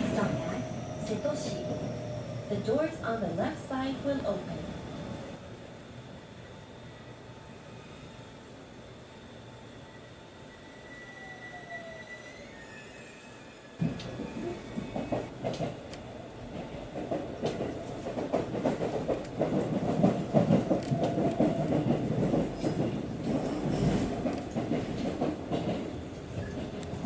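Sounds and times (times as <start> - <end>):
train wheels clattering on rails: 13.8 - 27.0.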